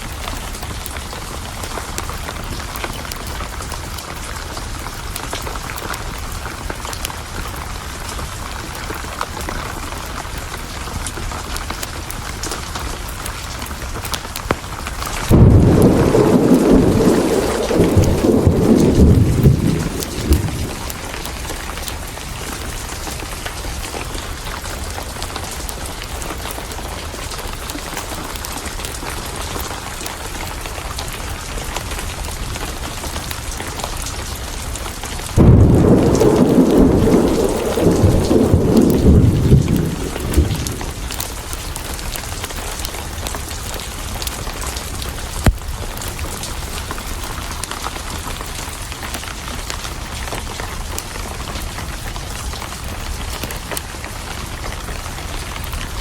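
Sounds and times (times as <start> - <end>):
heavy rain: 0.0 - 56.0
thunder crack and rumbling: 14.4 - 29.9, 30.8 - 56.0.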